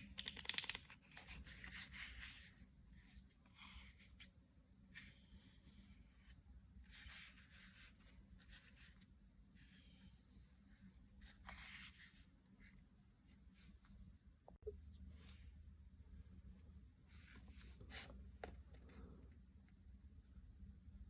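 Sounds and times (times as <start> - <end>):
faint rubbing or scratching strokes: 4.9 - 14.1.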